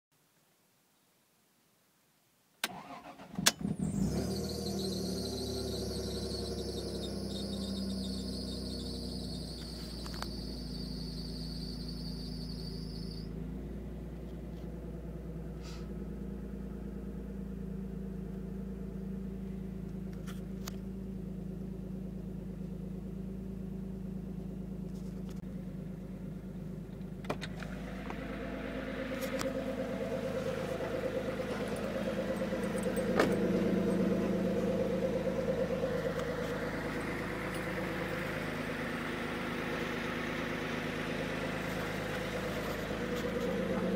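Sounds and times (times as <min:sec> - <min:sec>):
car engine exhaust idling and revving: 0:03.7 - 0:43.9.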